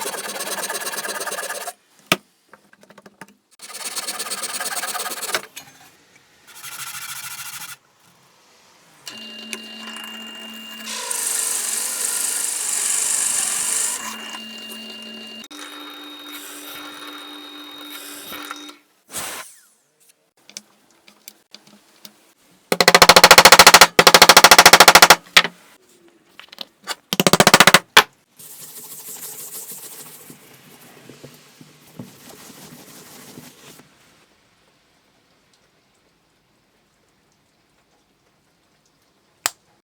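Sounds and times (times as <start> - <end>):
power tool cutting wood: 9.1 - 18.7.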